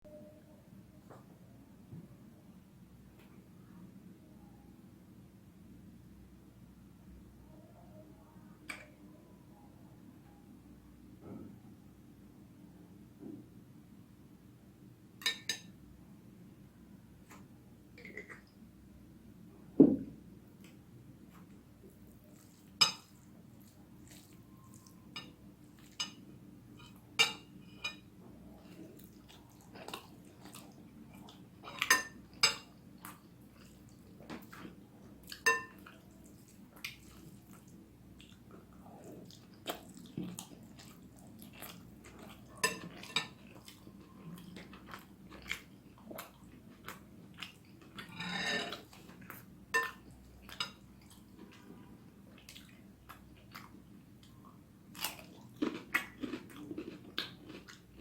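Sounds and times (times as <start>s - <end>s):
cutlery clinking on plate: 15.2s - 15.7s, 35.5s - 35.8s, 49.8s - 50.8s
soft chewing: 17.2s - 18.6s, 20.6s - 58.0s.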